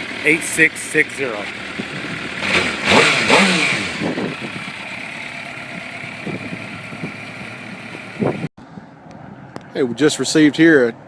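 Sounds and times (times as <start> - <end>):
engine revving and running: 0.0 - 8.5.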